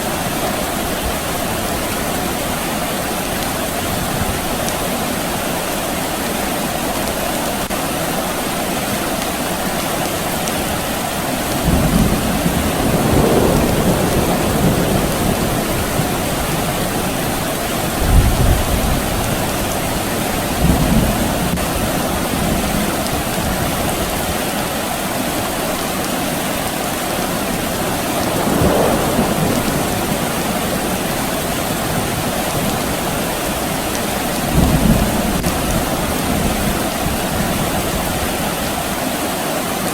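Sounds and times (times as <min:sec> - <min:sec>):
steady rain: 0:00.0 - 0:39.9
distant thunder rolling: 0:11.6 - 0:24.1, 0:27.5 - 0:38.1.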